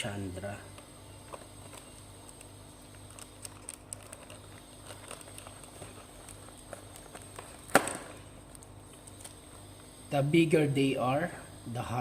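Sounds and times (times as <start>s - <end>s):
low electrical hum: 0.0s - 12.0s
trading cards rustling: 0.7s - 9.9s.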